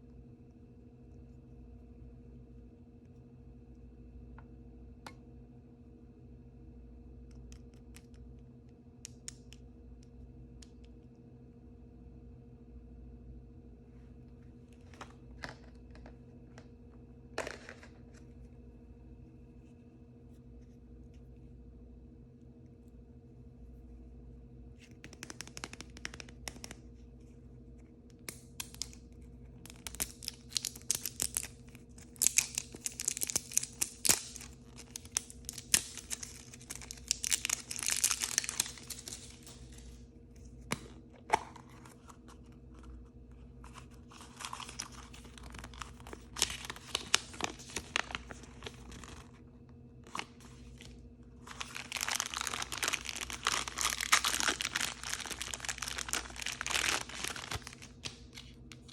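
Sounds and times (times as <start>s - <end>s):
packaging tearing and crinkling: 29.7s - 40.0s, 43.7s - 49.4s, 50.0s - 58.9s.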